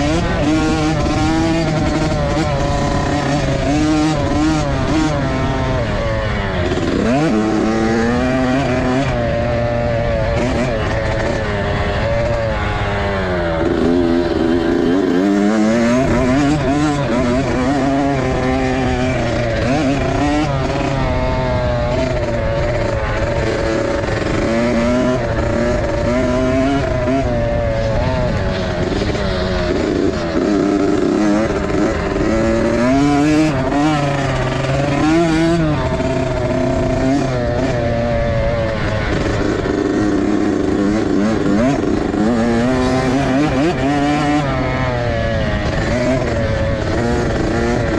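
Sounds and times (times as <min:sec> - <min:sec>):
dirt bike engines revving: 0:00.0 - 0:47.9.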